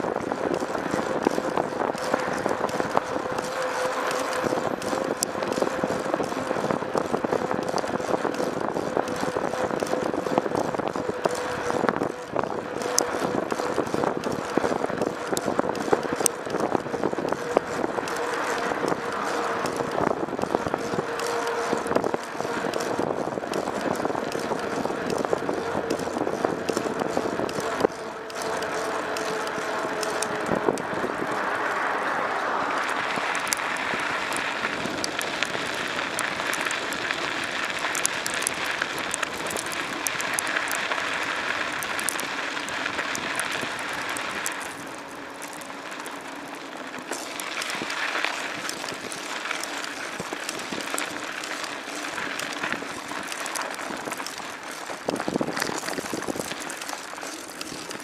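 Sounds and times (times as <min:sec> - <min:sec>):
wind and tyre noise: 0:00.0 - 0:58.0.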